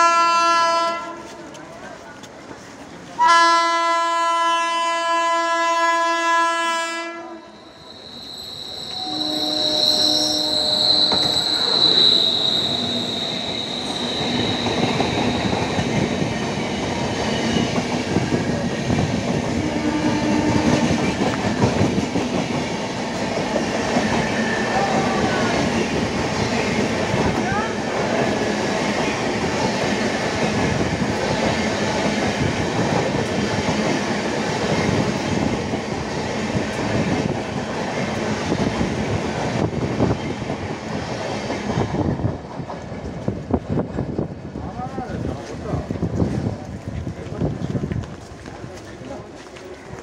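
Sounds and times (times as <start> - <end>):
train rumble and wheel clatter: 0.0 - 50.0
locomotive horn blast: 3.2 - 7.7, 8.8 - 13.5
high whine: 7.5 - 15.6.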